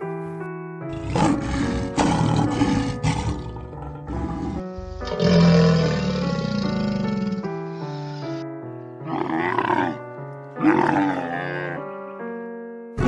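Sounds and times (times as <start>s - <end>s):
background music: 0.0s - 13.0s
crocodile roaring: 0.9s - 7.5s, 9.0s - 10.0s, 10.6s - 11.8s
rough growling roar: 0.9s - 7.5s.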